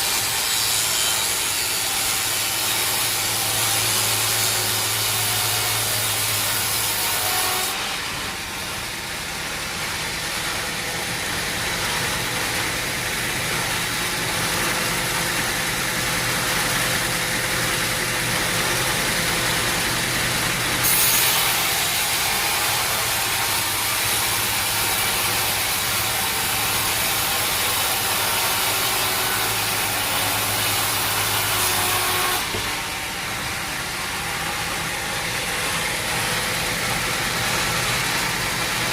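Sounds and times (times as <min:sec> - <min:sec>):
saw cutting wood: 0:00.0 - 0:38.9
engine drone: 0:32.5 - 0:38.9.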